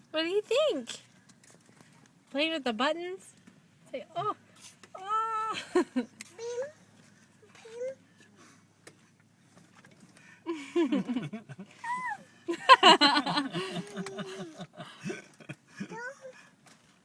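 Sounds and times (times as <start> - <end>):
toddler babbling and squealing: 6.4 - 6.8, 7.5 - 8.0, 11.8 - 12.3, 15.9 - 16.4.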